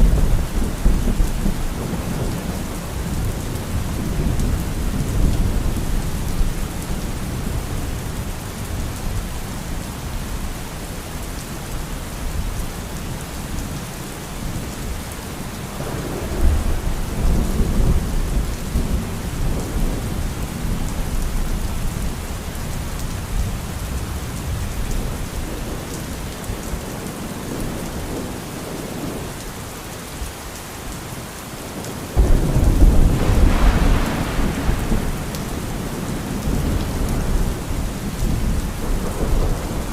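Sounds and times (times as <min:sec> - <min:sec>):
rolling thunder: 0:00.0 - 0:09.0, 0:32.2 - 0:39.9
steady rain: 0:00.0 - 0:39.9.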